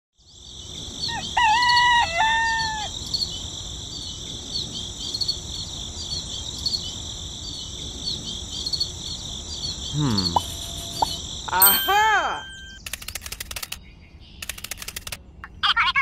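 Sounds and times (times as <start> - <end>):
high chirping insects or birds: 0.2 - 15.4
rooster crowing: 1.0 - 2.9.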